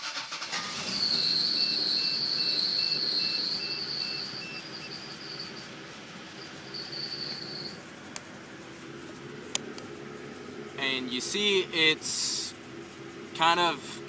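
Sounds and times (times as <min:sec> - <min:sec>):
engine idling unevenly: 0:00.0 - 0:14.0
high steady whine: 0:00.6 - 0:14.0
faint high beeping: 0:01.0 - 0:08.0.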